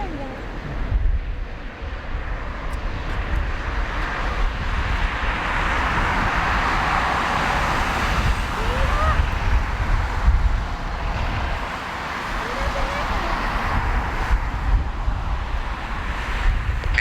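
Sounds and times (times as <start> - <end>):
jet engines at takeoff thrust: 0.0 - 17.0.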